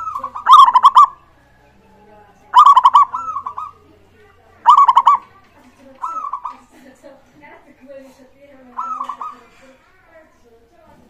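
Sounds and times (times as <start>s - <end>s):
dove cooing: 0.0s - 1.6s, 2.5s - 4.0s, 4.6s - 5.4s, 6.0s - 6.7s, 8.7s - 9.6s.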